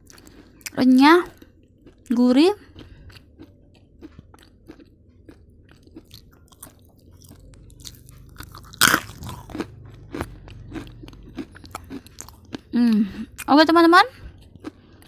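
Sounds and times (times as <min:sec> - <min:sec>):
person chewing crunchy crackers: 0:00.0 - 0:13.5, 0:14.1 - 0:15.0.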